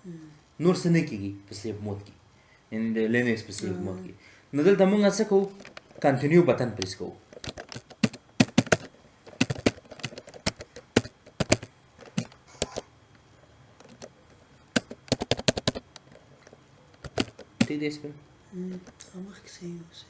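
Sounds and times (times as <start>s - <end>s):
computer keyboard clicking: 7.4s - 12.8s, 14.8s - 16.1s.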